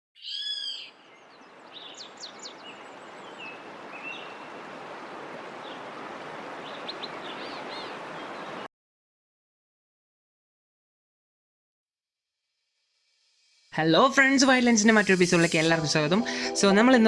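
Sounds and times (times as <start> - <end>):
bird chirps and whistles: 0.2 - 0.9
birds calling: 0.2 - 8.7
flowing water rushing: 1.1 - 8.7.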